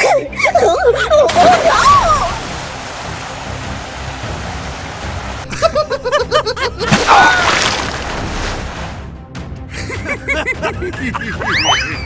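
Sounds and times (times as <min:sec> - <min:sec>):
high-pitched cartoon giggle: 0:00.0 - 0:02.2, 0:05.5 - 0:06.9, 0:09.8 - 0:12.0
voiced sound: 0:09.8 - 0:12.0.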